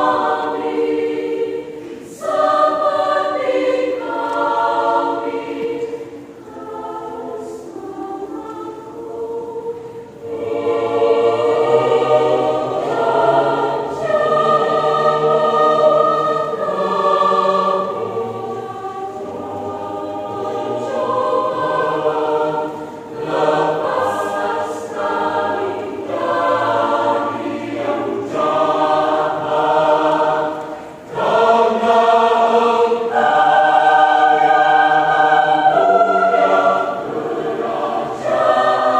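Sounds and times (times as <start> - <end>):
choir singing a hymn: 0.0 - 38.9.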